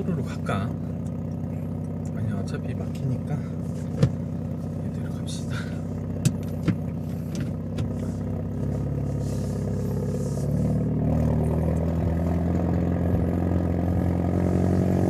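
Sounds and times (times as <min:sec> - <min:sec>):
car engine pulling while driving: 0:00.0 - 0:15.0.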